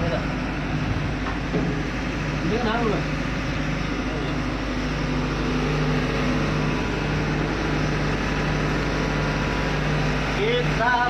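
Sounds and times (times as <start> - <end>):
ship engine machinery drone: 0.0 - 11.0.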